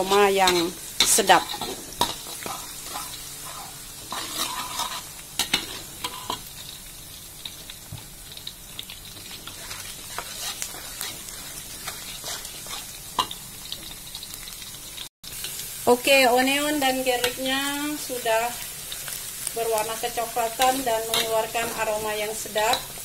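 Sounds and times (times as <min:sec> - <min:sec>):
metal spatula scraping pan: 0:00.0 - 0:06.5, 0:09.4 - 0:13.4
shallots sizzling in oil: 0:00.0 - 0:23.0.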